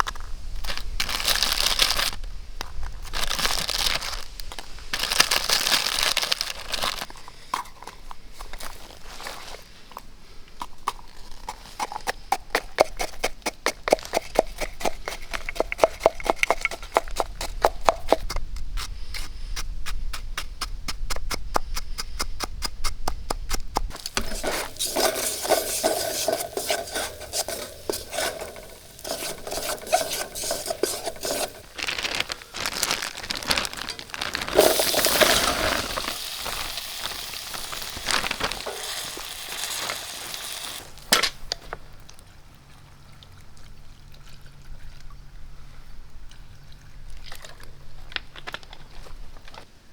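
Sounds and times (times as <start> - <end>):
utensil scraping in pot: 11.4 - 19.6, 23.9 - 41.5
metal utensil clinking in pot: 23.9 - 31.7.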